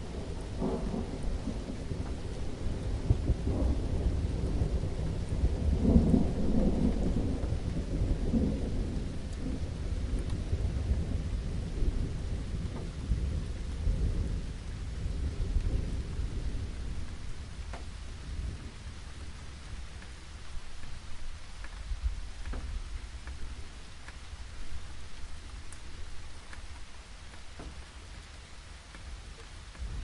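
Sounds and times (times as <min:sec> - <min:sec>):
thunder rumbling: 0:00.0 - 0:23.7, 0:29.2 - 0:30.0
steady rain: 0:00.0 - 0:30.0.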